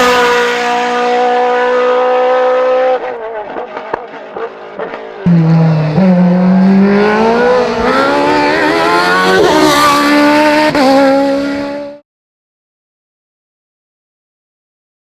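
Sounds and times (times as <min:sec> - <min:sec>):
race car engine at high revs: 0:00.0 - 0:12.0.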